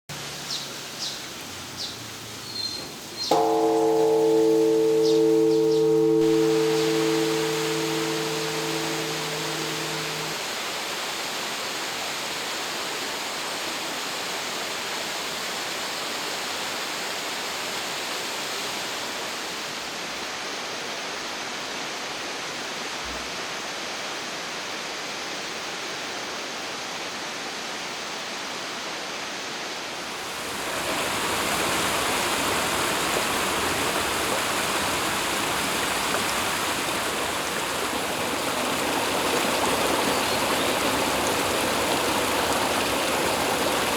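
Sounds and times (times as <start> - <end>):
flowing water rushing: 0.2 - 19.4, 29.8 - 43.9.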